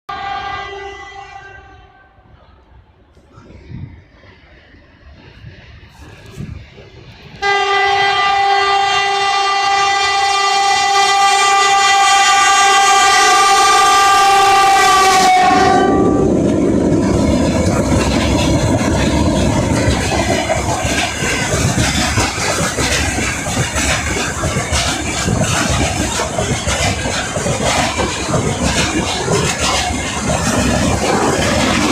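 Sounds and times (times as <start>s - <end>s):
electric locomotive horn blast: 0.1s - 2.2s, 7.4s - 16.4s
freight train rumbling past: 0.1s - 31.9s.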